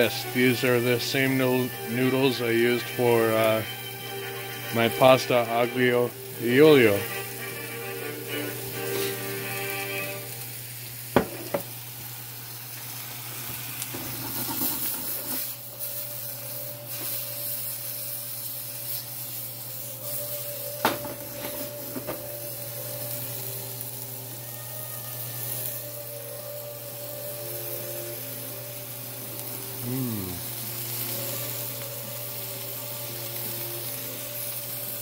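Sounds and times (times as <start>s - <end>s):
meat and peppers sizzling in a skillet: 0.0s - 35.0s
pan knocking: 11.2s - 11.7s.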